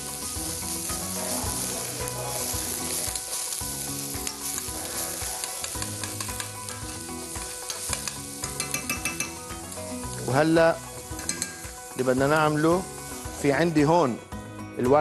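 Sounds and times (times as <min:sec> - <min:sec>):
onion and garlic sizzling in oil: 0:00.0 - 0:14.5
utensil clicking against pan: 0:04.2 - 0:09.4.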